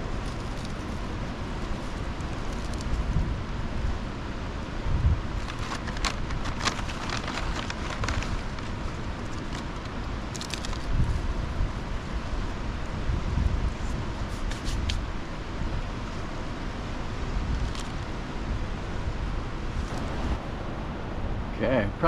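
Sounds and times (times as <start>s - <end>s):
wind on microphone: 0.0s - 9.3s, 10.6s - 16.2s
food wrapper crinkling: 5.4s - 11.0s.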